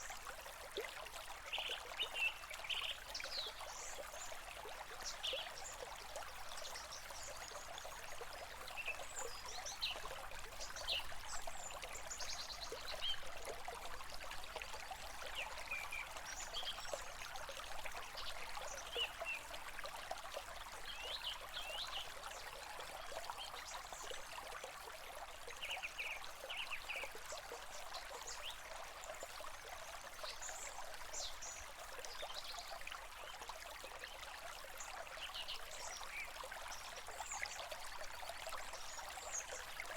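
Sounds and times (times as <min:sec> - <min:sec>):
stream running: 0:00.0 - 0:39.9.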